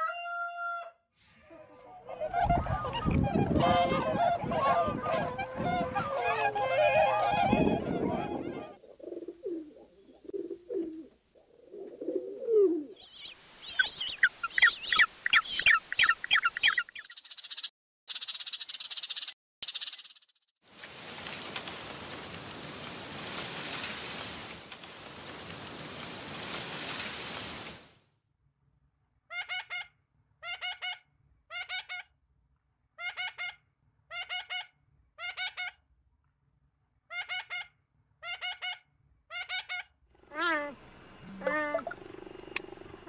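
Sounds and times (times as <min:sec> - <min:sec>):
lower wavering bird call: 0:02.4 - 0:09.8
lorikeet calling: 0:13.0 - 0:20.2.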